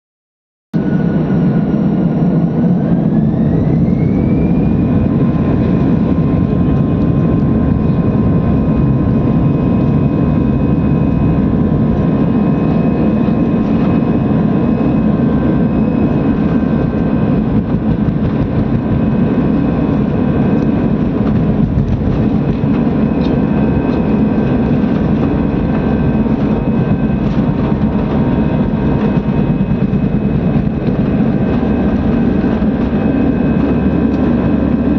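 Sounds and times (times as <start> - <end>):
jet engines spooling up: 0.8 - 34.9.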